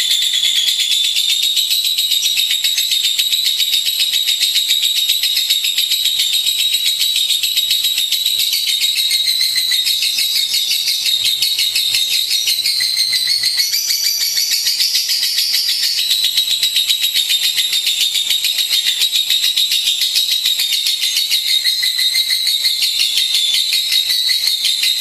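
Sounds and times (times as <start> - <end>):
lovebird chattering trill: 0.0 - 25.0.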